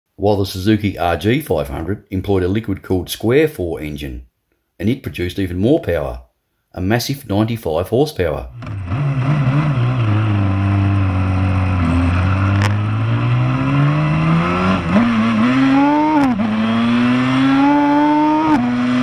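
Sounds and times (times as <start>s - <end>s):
motorcycle engine accelerating: 8.6s - 19.0s.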